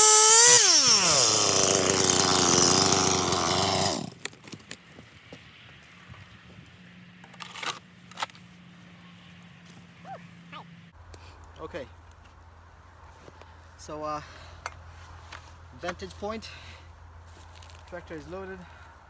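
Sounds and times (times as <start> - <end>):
chainsaw engine idling: 0.0 - 4.2.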